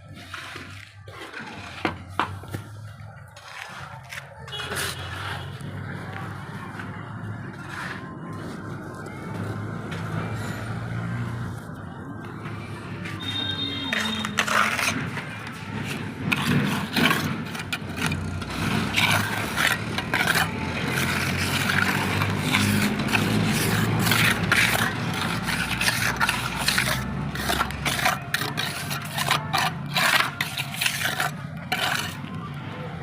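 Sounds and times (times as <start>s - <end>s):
tool scraping rough surface: 0.0s - 2.7s, 3.4s - 6.1s, 7.5s - 8.6s, 13.0s - 32.4s.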